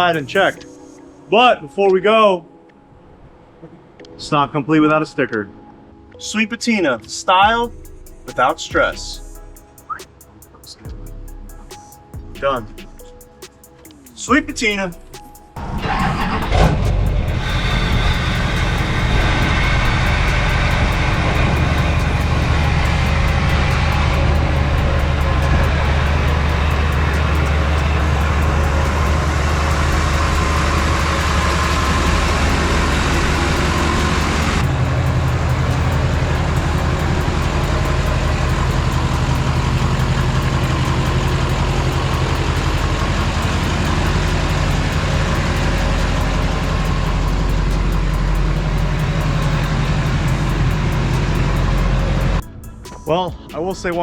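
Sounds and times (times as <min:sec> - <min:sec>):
diesel truck engine running: 0:15.6 - 0:52.4.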